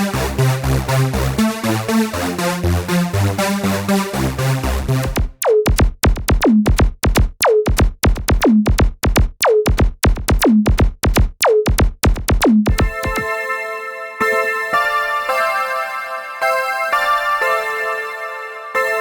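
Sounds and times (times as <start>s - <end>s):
sustained synthesizer chord: 12.8s - 19.0s.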